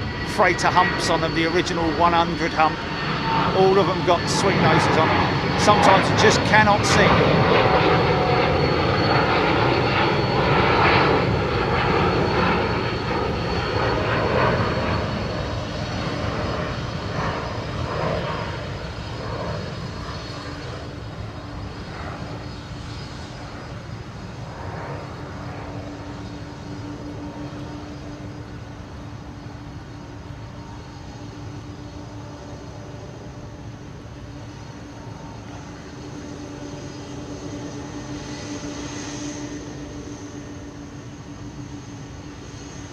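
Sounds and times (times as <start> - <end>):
jet engines rumbling: 0.0 - 42.9.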